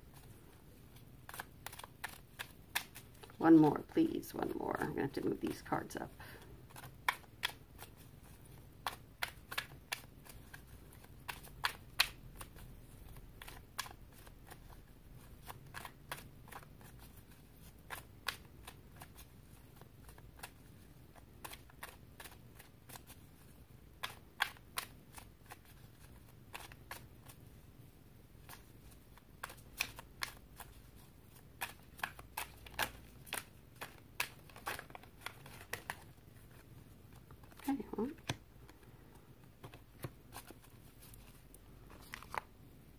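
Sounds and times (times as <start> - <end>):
cards being shuffled: 0.0 - 5.6, 6.2 - 42.9.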